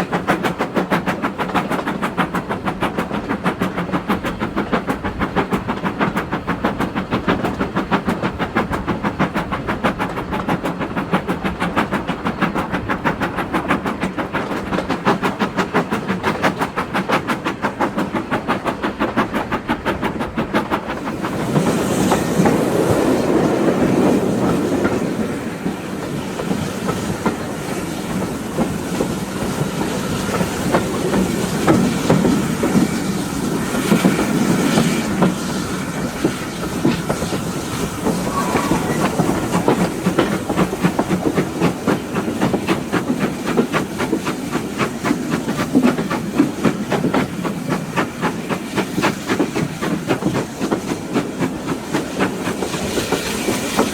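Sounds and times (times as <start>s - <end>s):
rushing rumble of moving train: 0.0s - 53.9s
steam locomotive chuffing: 0.0s - 53.9s.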